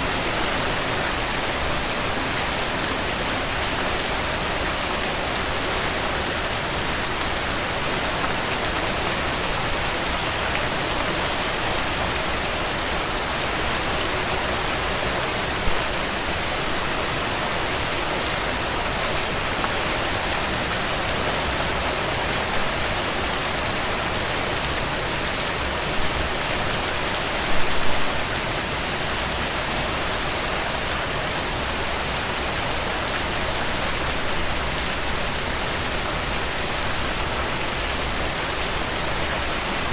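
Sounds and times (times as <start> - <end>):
rain pattering on a tent: 0.0 - 39.9.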